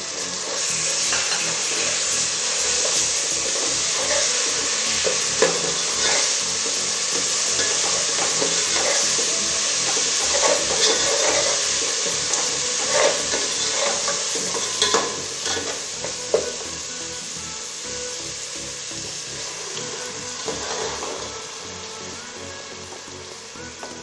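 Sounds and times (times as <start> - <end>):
onions sizzling in hot oil: 0.0 - 24.0
steel ladle scraping a pot: 0.2 - 16.6, 19.4 - 21.4.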